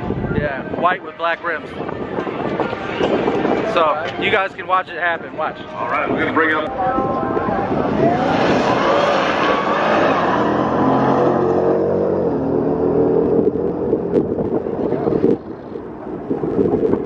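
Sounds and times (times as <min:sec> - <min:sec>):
race cars accelerating hard: 0:07.0 - 0:15.4.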